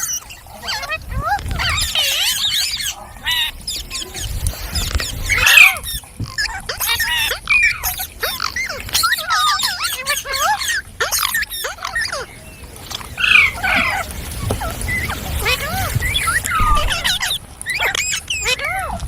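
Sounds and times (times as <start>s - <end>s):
parrot harsh squawk: 0.0s - 12.3s
parrots chattering: 0.0s - 19.0s.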